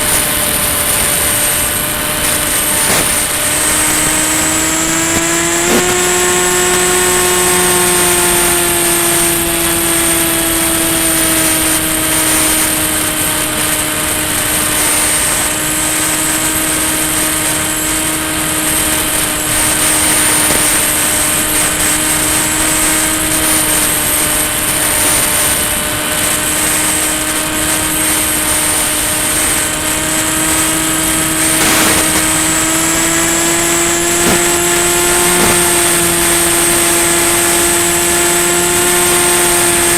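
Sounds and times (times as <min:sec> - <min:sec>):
model plane motor drone: 0:00.0 - 0:39.9
rushing air: 0:16.6 - 0:37.7.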